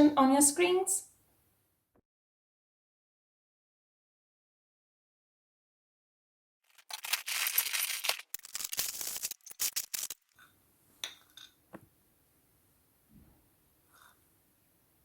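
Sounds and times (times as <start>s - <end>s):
plastic packet rustling: 6.7s - 10.4s.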